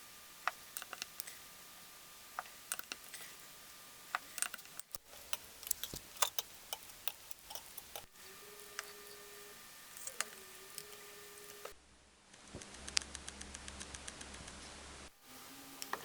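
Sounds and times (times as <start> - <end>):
tools and engine parts clicking: 0.5 - 1.3, 2.7 - 3.2, 4.1 - 9.2, 9.9 - 11.7.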